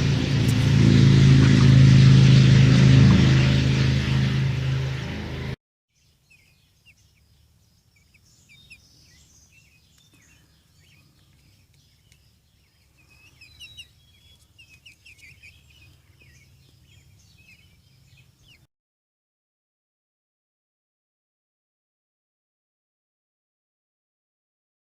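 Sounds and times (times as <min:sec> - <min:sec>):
steady low hum: 0:00.0 - 0:05.6, 0:06.8 - 0:18.6
faint birds chirping: 0:05.9 - 0:18.7.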